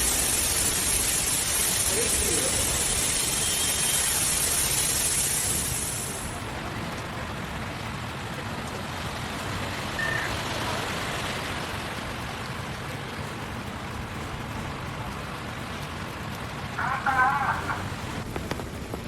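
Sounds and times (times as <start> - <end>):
rushing water: 0.0 - 18.9
rain: 0.0 - 19.0
traffic: 0.0 - 19.0
faint short beep: 10.0 - 10.4.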